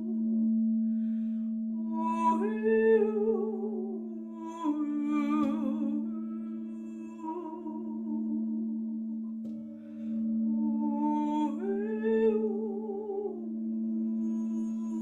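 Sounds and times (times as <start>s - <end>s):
woman singing wordless tones: 0.0s - 0.3s, 1.8s - 8.9s, 10.6s - 15.0s
sustained singing bowl drone: 0.0s - 15.0s.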